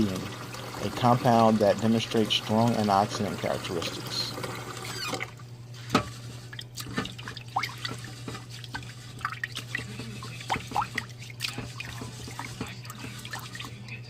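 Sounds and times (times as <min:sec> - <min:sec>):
water dripping and splashing: 0:06.5 - 0:14.0.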